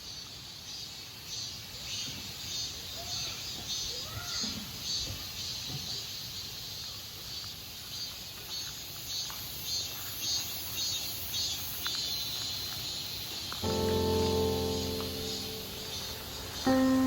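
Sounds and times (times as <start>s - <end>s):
insects chirping: 10.5s - 17.0s
soft background hiss: 13.6s - 17.0s.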